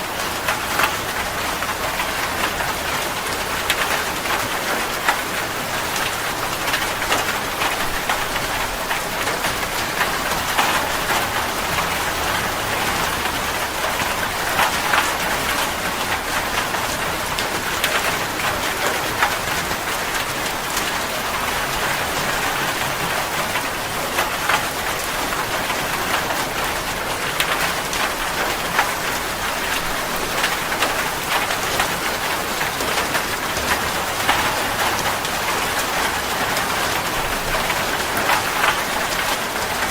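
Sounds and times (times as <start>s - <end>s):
raindrops ticking on a surface: 0.0s - 39.9s.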